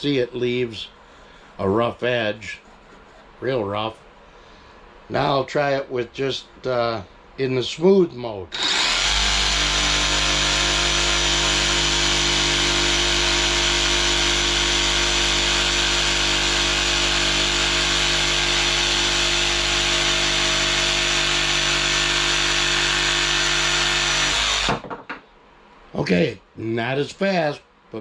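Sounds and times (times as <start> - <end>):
jigsaw cutting wood: 8.5 - 24.8.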